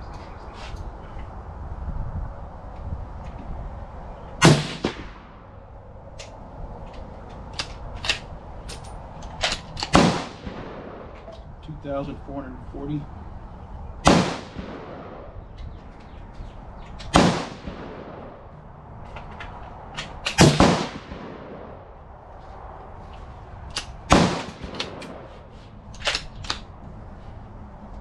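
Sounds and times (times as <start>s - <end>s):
faint sharp shots: 4.4s - 5.4s, 9.9s - 11.3s, 14.0s - 15.4s, 17.1s - 18.5s, 20.3s - 21.8s
rifle shots with echo: 4.4s - 5.5s, 9.9s - 11.3s, 14.0s - 15.4s, 17.1s - 18.5s, 20.3s - 21.8s, 24.1s - 25.3s.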